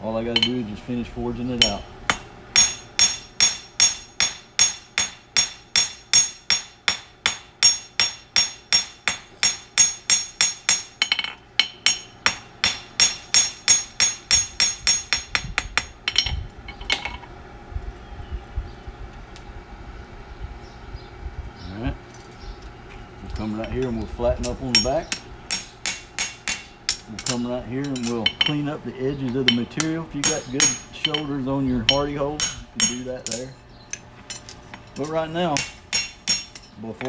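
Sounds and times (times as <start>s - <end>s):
hammer ringing on anvil: 0.3s - 0.7s, 1.5s - 17.1s, 23.6s - 36.8s.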